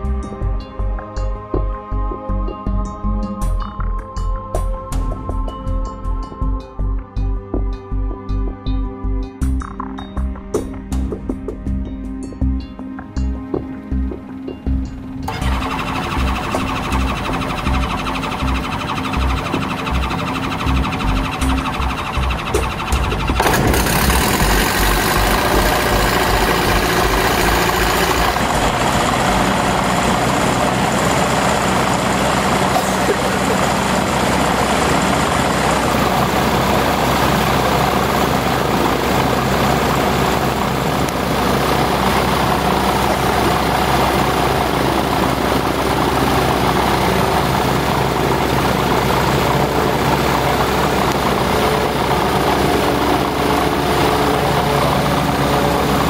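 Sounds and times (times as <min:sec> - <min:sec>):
aircraft engine running: 0:12.4 - 0:56.0.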